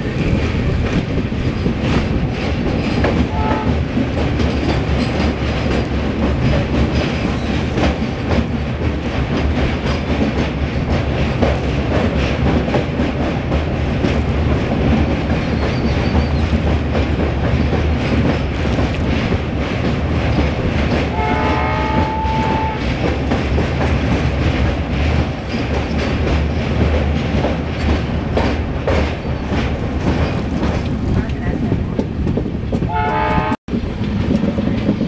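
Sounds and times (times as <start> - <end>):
train wheels rattling on rails: 0.0 - 35.0
train horn: 3.3 - 3.8, 21.1 - 22.8, 32.9 - 33.6.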